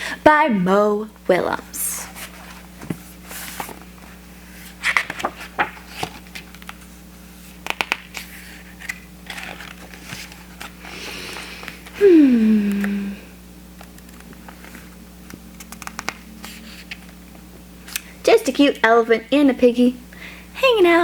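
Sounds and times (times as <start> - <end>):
paper rustling pages turned: 2.1 - 11.9, 13.8 - 17.2
vocal sound sliding down: 12.0 - 13.4.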